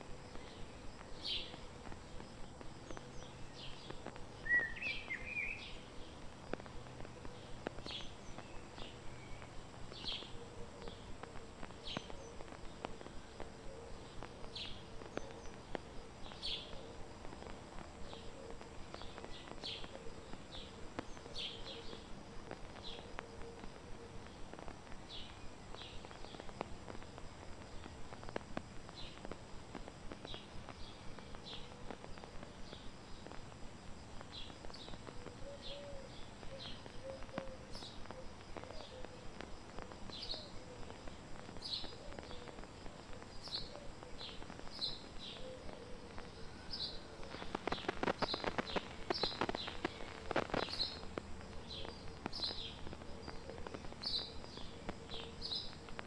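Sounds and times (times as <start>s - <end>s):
crackling: 0.0s - 56.0s
small bird chirping: 0.3s - 6.6s, 43.4s - 56.0s.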